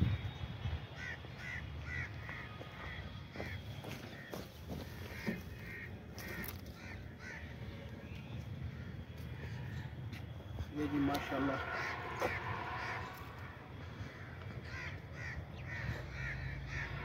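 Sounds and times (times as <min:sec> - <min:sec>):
footsteps on stony ground: 0:02.2 - 0:06.9.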